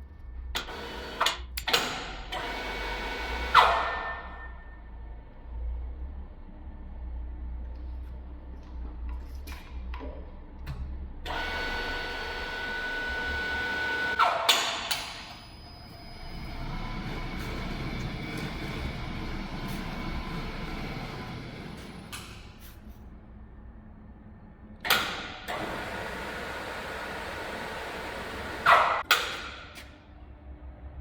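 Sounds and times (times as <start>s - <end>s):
machine motor whining: 0.6s - 1.5s, 11.2s - 14.2s, 15.1s - 22.4s.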